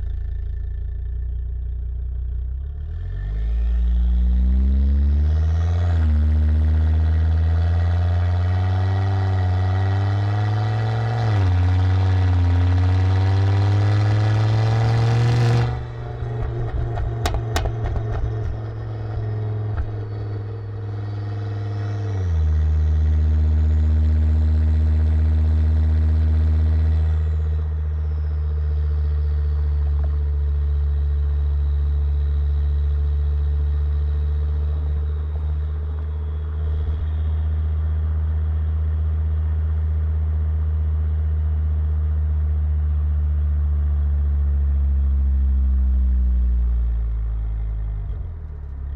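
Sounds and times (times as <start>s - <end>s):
car engine revving: 0.0s - 40.8s
exhaust pops and crackles: 14.8s - 21.3s, 29.0s - 31.8s.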